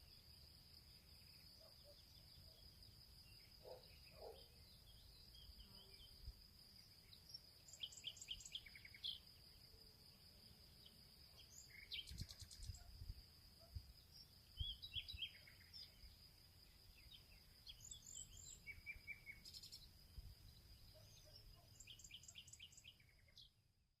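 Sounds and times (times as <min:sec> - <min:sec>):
insect trill: 0:00.0 - 0:23.7.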